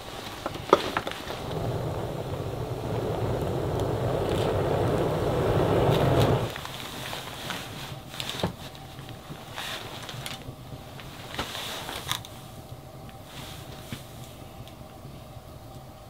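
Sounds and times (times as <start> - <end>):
wood fire crackling: 0.0 - 16.0
sharp snaps of fire: 1.1 - 7.0
bursts of hiss: 1.2 - 6.6.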